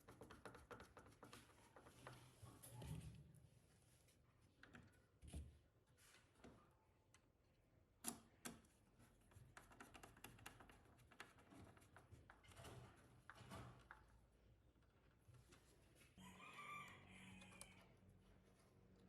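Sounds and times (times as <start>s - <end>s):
faint clicks and taps: 0.0s - 2.8s, 4.5s - 7.4s.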